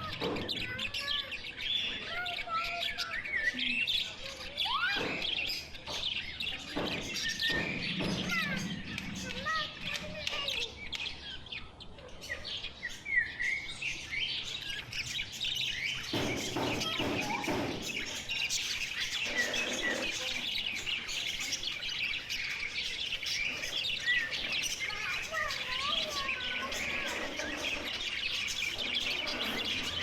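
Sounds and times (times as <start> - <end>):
small birds chirping: 0.0 - 30.0
harsh bird squawk: 16.0 - 21.0, 23.4 - 30.0.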